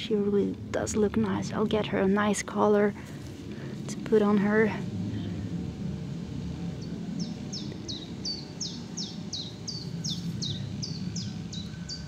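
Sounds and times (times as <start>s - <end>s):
low outdoor rumble: 0.0s - 12.0s
songbird chirping: 6.3s - 12.0s.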